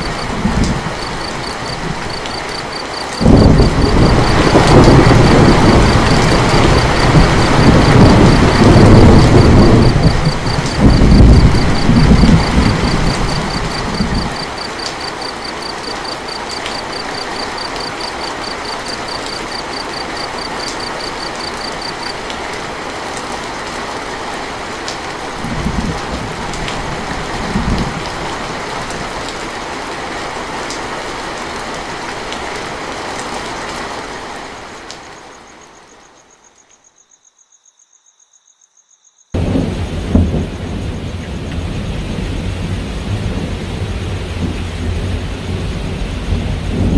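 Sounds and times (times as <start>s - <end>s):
thunder rumbling: 0.0s - 22.6s, 25.2s - 29.3s, 39.4s - 46.9s
heavy rain falling: 0.0s - 36.2s, 39.4s - 46.9s.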